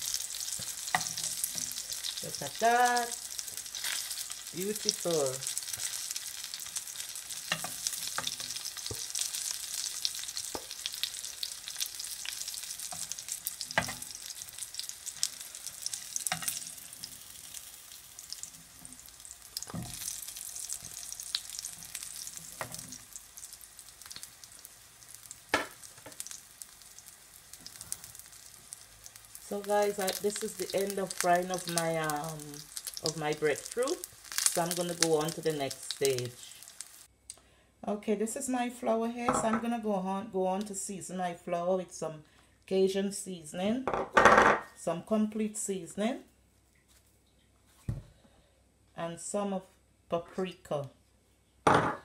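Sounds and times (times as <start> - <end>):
food sizzling in oil: 0.0 - 37.1.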